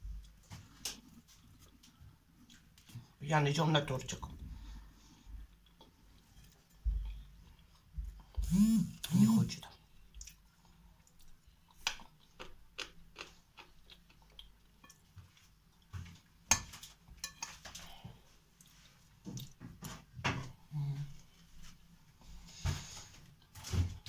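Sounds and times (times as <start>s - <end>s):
person chewing cake: 5.4s - 9.1s, 9.7s - 17.0s, 17.7s - 19.6s.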